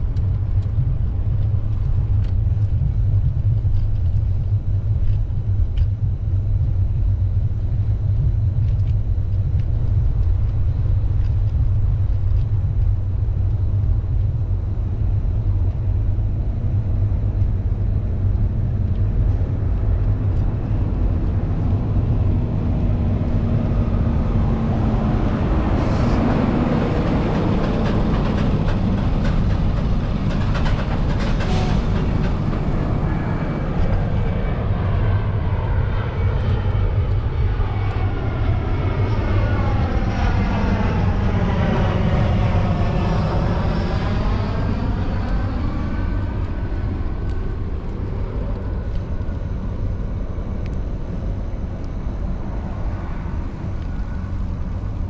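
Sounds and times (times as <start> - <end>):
aircraft passing overhead: 0.0 - 55.0.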